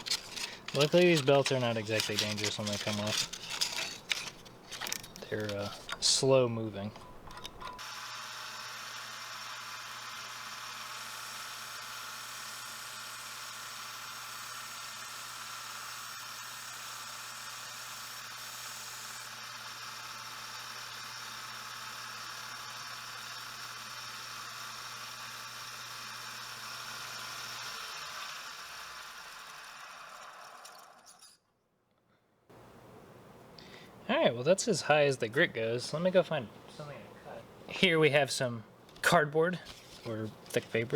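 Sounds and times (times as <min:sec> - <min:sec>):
belt sander sharpening knife: 0:00.0 - 0:05.1.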